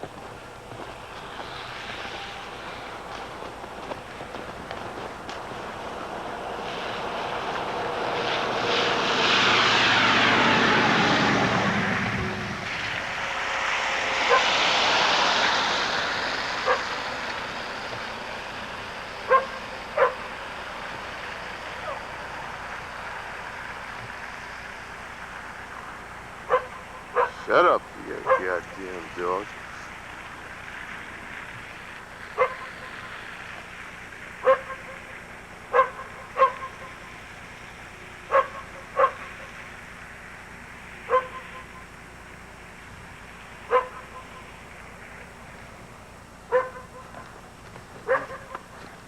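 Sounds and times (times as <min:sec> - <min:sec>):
aircraft engine rush: 0:00.0 - 0:49.0
dog barking: 0:14.2 - 0:14.5, 0:16.6 - 0:16.9, 0:19.3 - 0:20.3, 0:26.5 - 0:27.5, 0:28.2 - 0:28.7, 0:32.4 - 0:33.0, 0:34.4 - 0:35.1, 0:35.7 - 0:36.9, 0:38.3 - 0:39.4, 0:41.1 - 0:41.7, 0:43.7 - 0:44.4, 0:46.5 - 0:47.3, 0:48.0 - 0:48.6.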